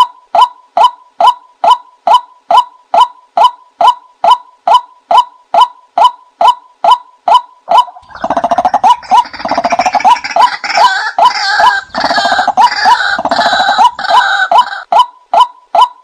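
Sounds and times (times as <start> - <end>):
harsh dense bird calling: 6.4 - 15.0.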